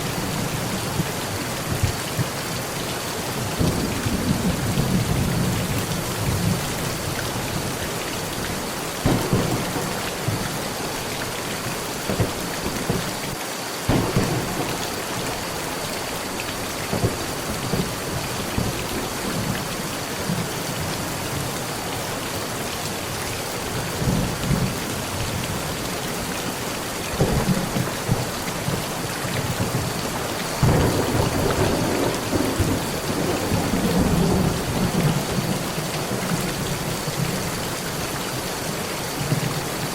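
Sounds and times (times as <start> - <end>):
heavy rain on a metal roof: 0.0 - 39.9
thunder rumbling: 3.4 - 19.7, 27.1 - 37.8.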